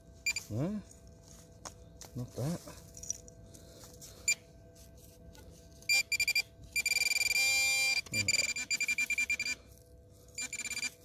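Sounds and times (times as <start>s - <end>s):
metal detector beeping: 0.2s - 0.6s, 4.2s - 9.7s, 10.3s - 11.0s.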